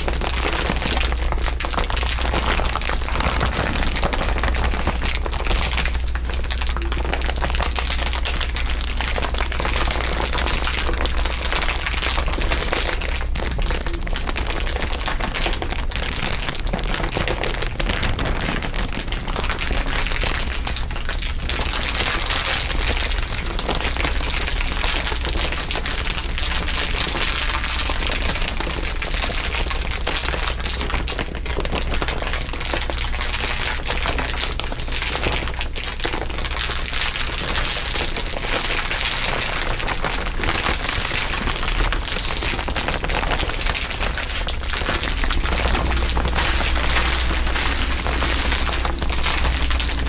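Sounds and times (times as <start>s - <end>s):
steady low hum: 0.0s - 29.3s, 40.5s - 50.0s
asmr crinkling: 0.0s - 50.0s.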